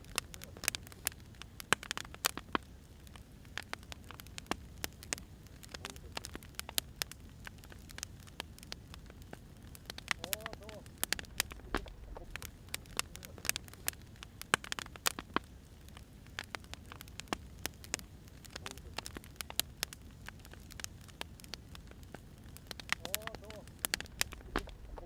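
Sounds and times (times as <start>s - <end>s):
firewood crackling and popping: 0.0s - 25.0s
low rumble: 11.1s - 12.7s, 23.9s - 25.0s.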